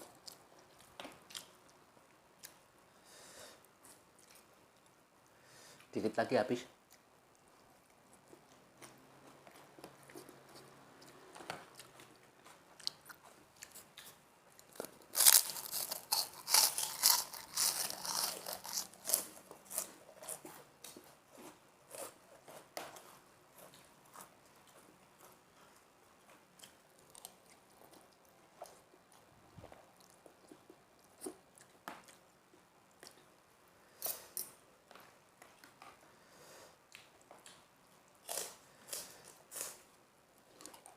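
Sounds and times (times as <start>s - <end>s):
crackers crunching: 6.9s - 32.2s, 37.0s - 40.9s.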